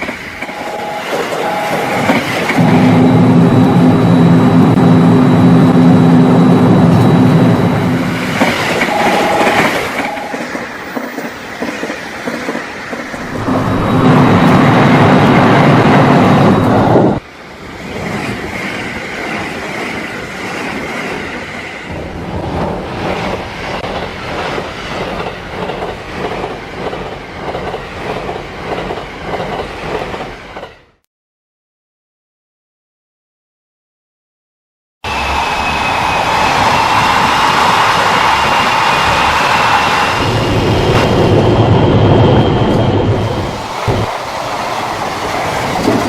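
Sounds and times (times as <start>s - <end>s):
train wheels clattering over rails: 6.6s - 16.7s, 17.8s - 30.9s, 42.7s - 46.0s.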